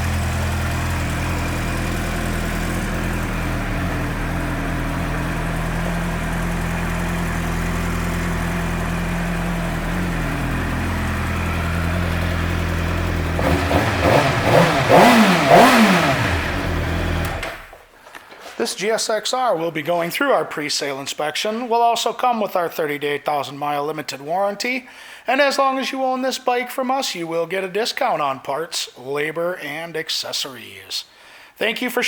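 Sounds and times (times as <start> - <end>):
engine throttle revs: 0.0 - 17.7
motorcycle engine idling: 0.0 - 17.7.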